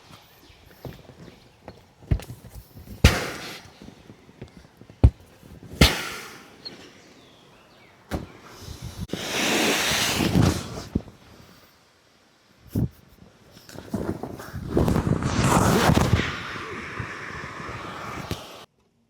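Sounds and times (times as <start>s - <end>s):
even rushing noise: 14.5s - 18.7s.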